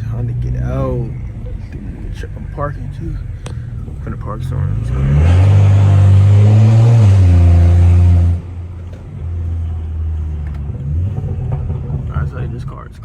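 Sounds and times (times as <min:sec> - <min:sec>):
engine idling low: 0:00.0 - 0:13.0
loud car exhaust under throttle: 0:00.0 - 0:13.0.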